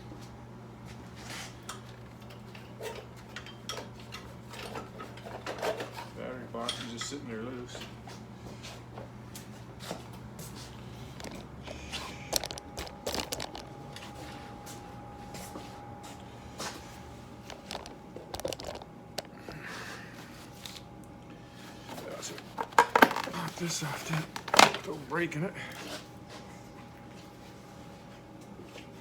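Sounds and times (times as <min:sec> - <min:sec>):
motorcycle parts clicking and scraping: 0:11.1 - 0:14.3, 0:17.4 - 0:19.5.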